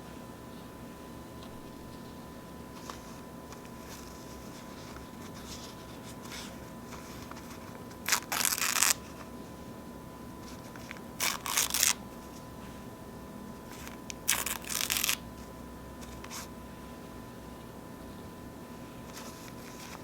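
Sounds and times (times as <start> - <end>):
faint paper rustling: 1.4 - 9.6, 13.6 - 20.0
paper napkins tearing: 1.5 - 9.2, 10.5 - 12.0, 13.8 - 15.2.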